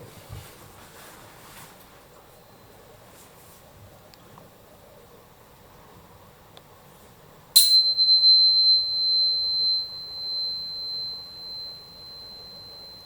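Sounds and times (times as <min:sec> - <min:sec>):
tuning fork ringing: 0:07.6 - 0:13.0.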